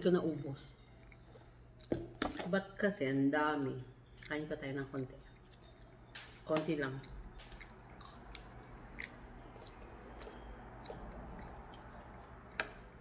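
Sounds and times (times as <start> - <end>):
person chewing noodles: 0.8 - 2.2, 5.0 - 6.4, 7.0 - 13.0.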